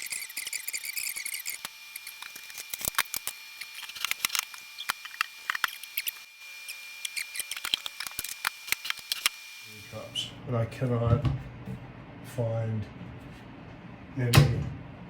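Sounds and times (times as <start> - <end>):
high chirping squeaks: 0.0 - 2.7, 4.7 - 9.2.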